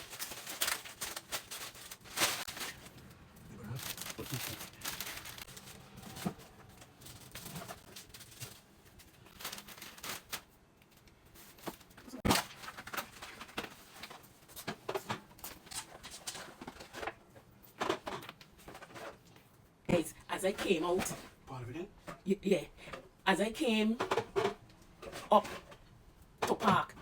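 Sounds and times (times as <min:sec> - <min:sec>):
packaging rustle: 0:00.0 - 0:17.2
groceries knocking and clicking: 0:00.0 - 0:19.4, 0:23.7 - 0:27.0.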